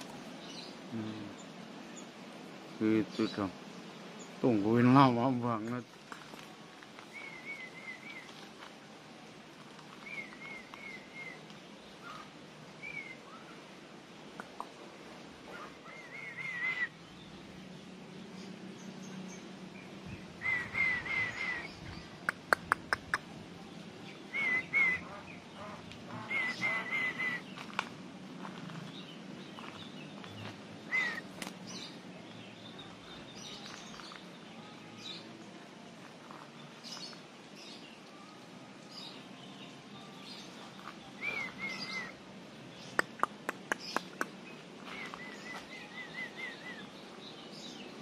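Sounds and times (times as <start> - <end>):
bird chirping: 0.0 - 8.6, 9.6 - 13.7, 15.5 - 35.4, 36.2 - 48.0
faint high bird calls: 7.0 - 8.6, 9.9 - 14.8, 15.4 - 17.2, 20.4 - 27.8, 29.5 - 32.0, 40.0 - 42.2, 42.8 - 47.8.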